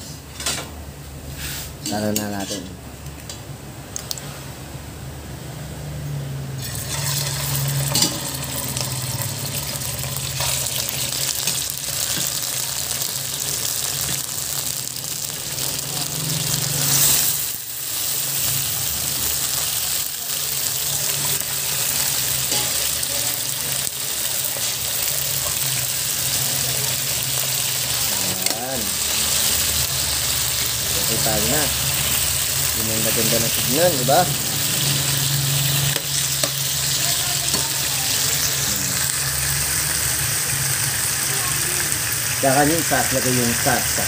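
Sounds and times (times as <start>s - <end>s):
chicken sizzling in hot oil: 6.6s - 44.0s.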